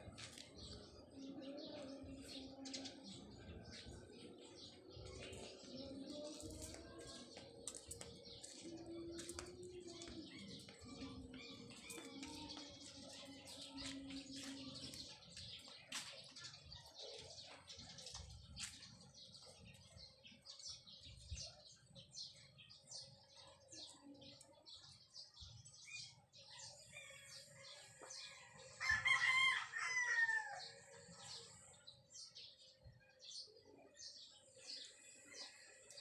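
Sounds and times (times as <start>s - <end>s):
small birds chirping: 0.0s - 36.0s
rooster crowing: 28.8s - 30.7s.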